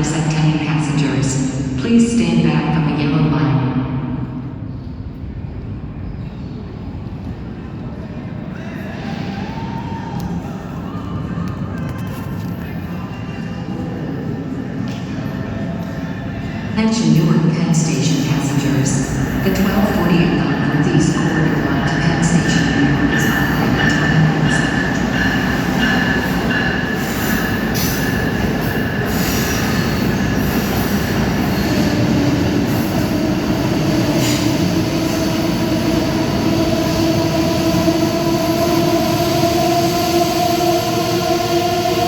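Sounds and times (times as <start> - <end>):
train wheel squeal and rail noise: 17.8 - 40.4.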